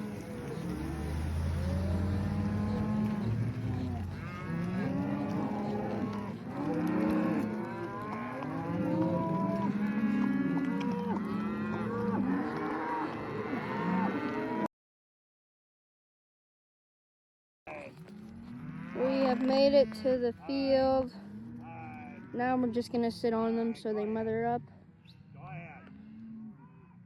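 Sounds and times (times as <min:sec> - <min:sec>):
cows bawling: 0:00.0 - 0:14.7, 0:17.7 - 0:22.7.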